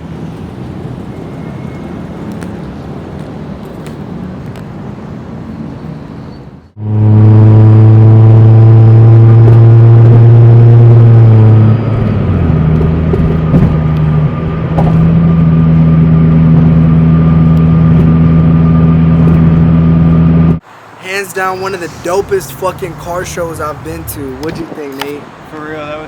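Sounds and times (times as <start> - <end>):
car engine revving: 6.7 - 24.8.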